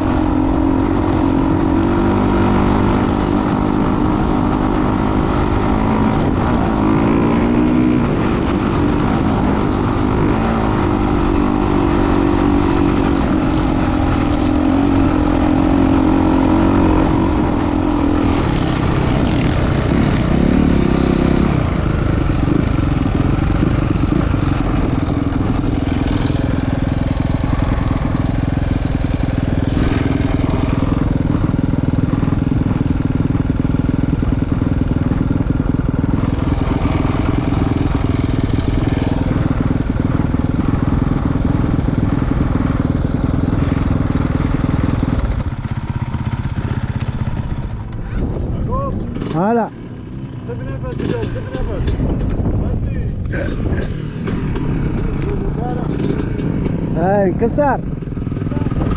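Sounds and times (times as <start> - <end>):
motocross motorcycle engine: 0.0 - 58.9.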